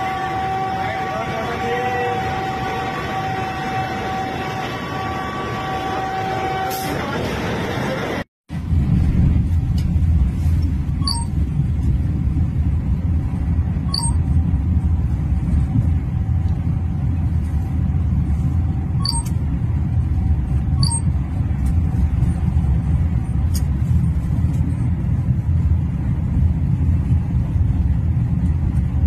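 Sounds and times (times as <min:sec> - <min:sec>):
train rumble inside coach: 0:00.0 - 0:29.0.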